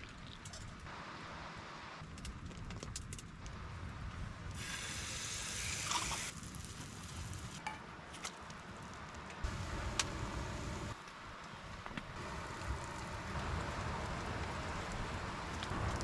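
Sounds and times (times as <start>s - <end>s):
frying sizzle: 12.2s - 16.0s.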